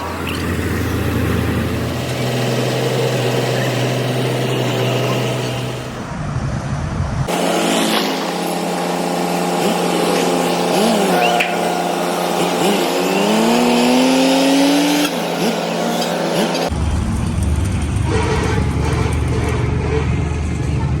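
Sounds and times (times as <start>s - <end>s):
machinery humming: 0.0s - 6.2s, 7.3s - 19.8s
higher-pitched machine hum: 7.3s - 16.1s.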